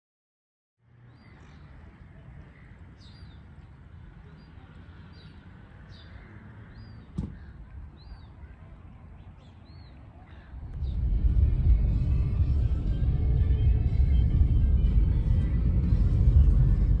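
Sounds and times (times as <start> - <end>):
wind rumble on microphone: 10.5 - 17.0.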